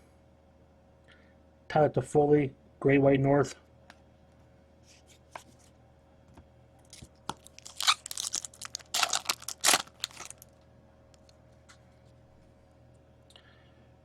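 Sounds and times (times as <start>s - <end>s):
plastic wrapper crinkling and tearing: 6.9s - 11.3s.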